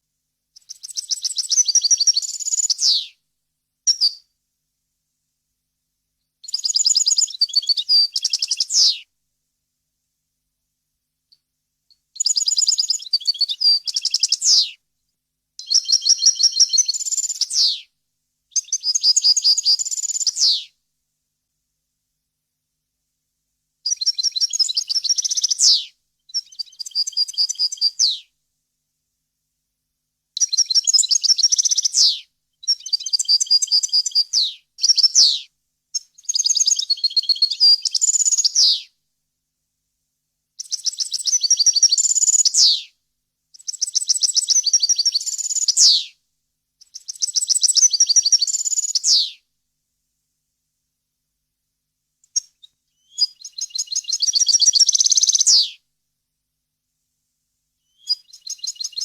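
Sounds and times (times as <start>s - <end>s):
goldfinch twittering song: 53.0s - 55.7s.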